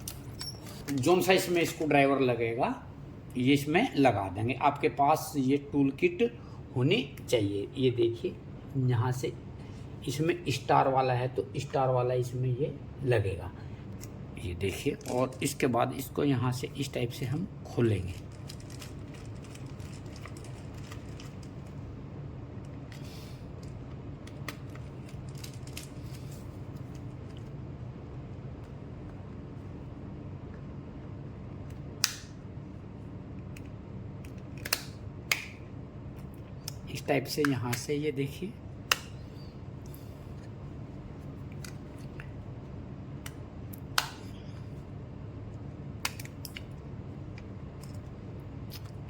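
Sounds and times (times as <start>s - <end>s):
steady low hum: 0.0s - 49.0s
plastic housing clicks and snaps: 33.5s - 35.6s, 46.0s - 46.7s.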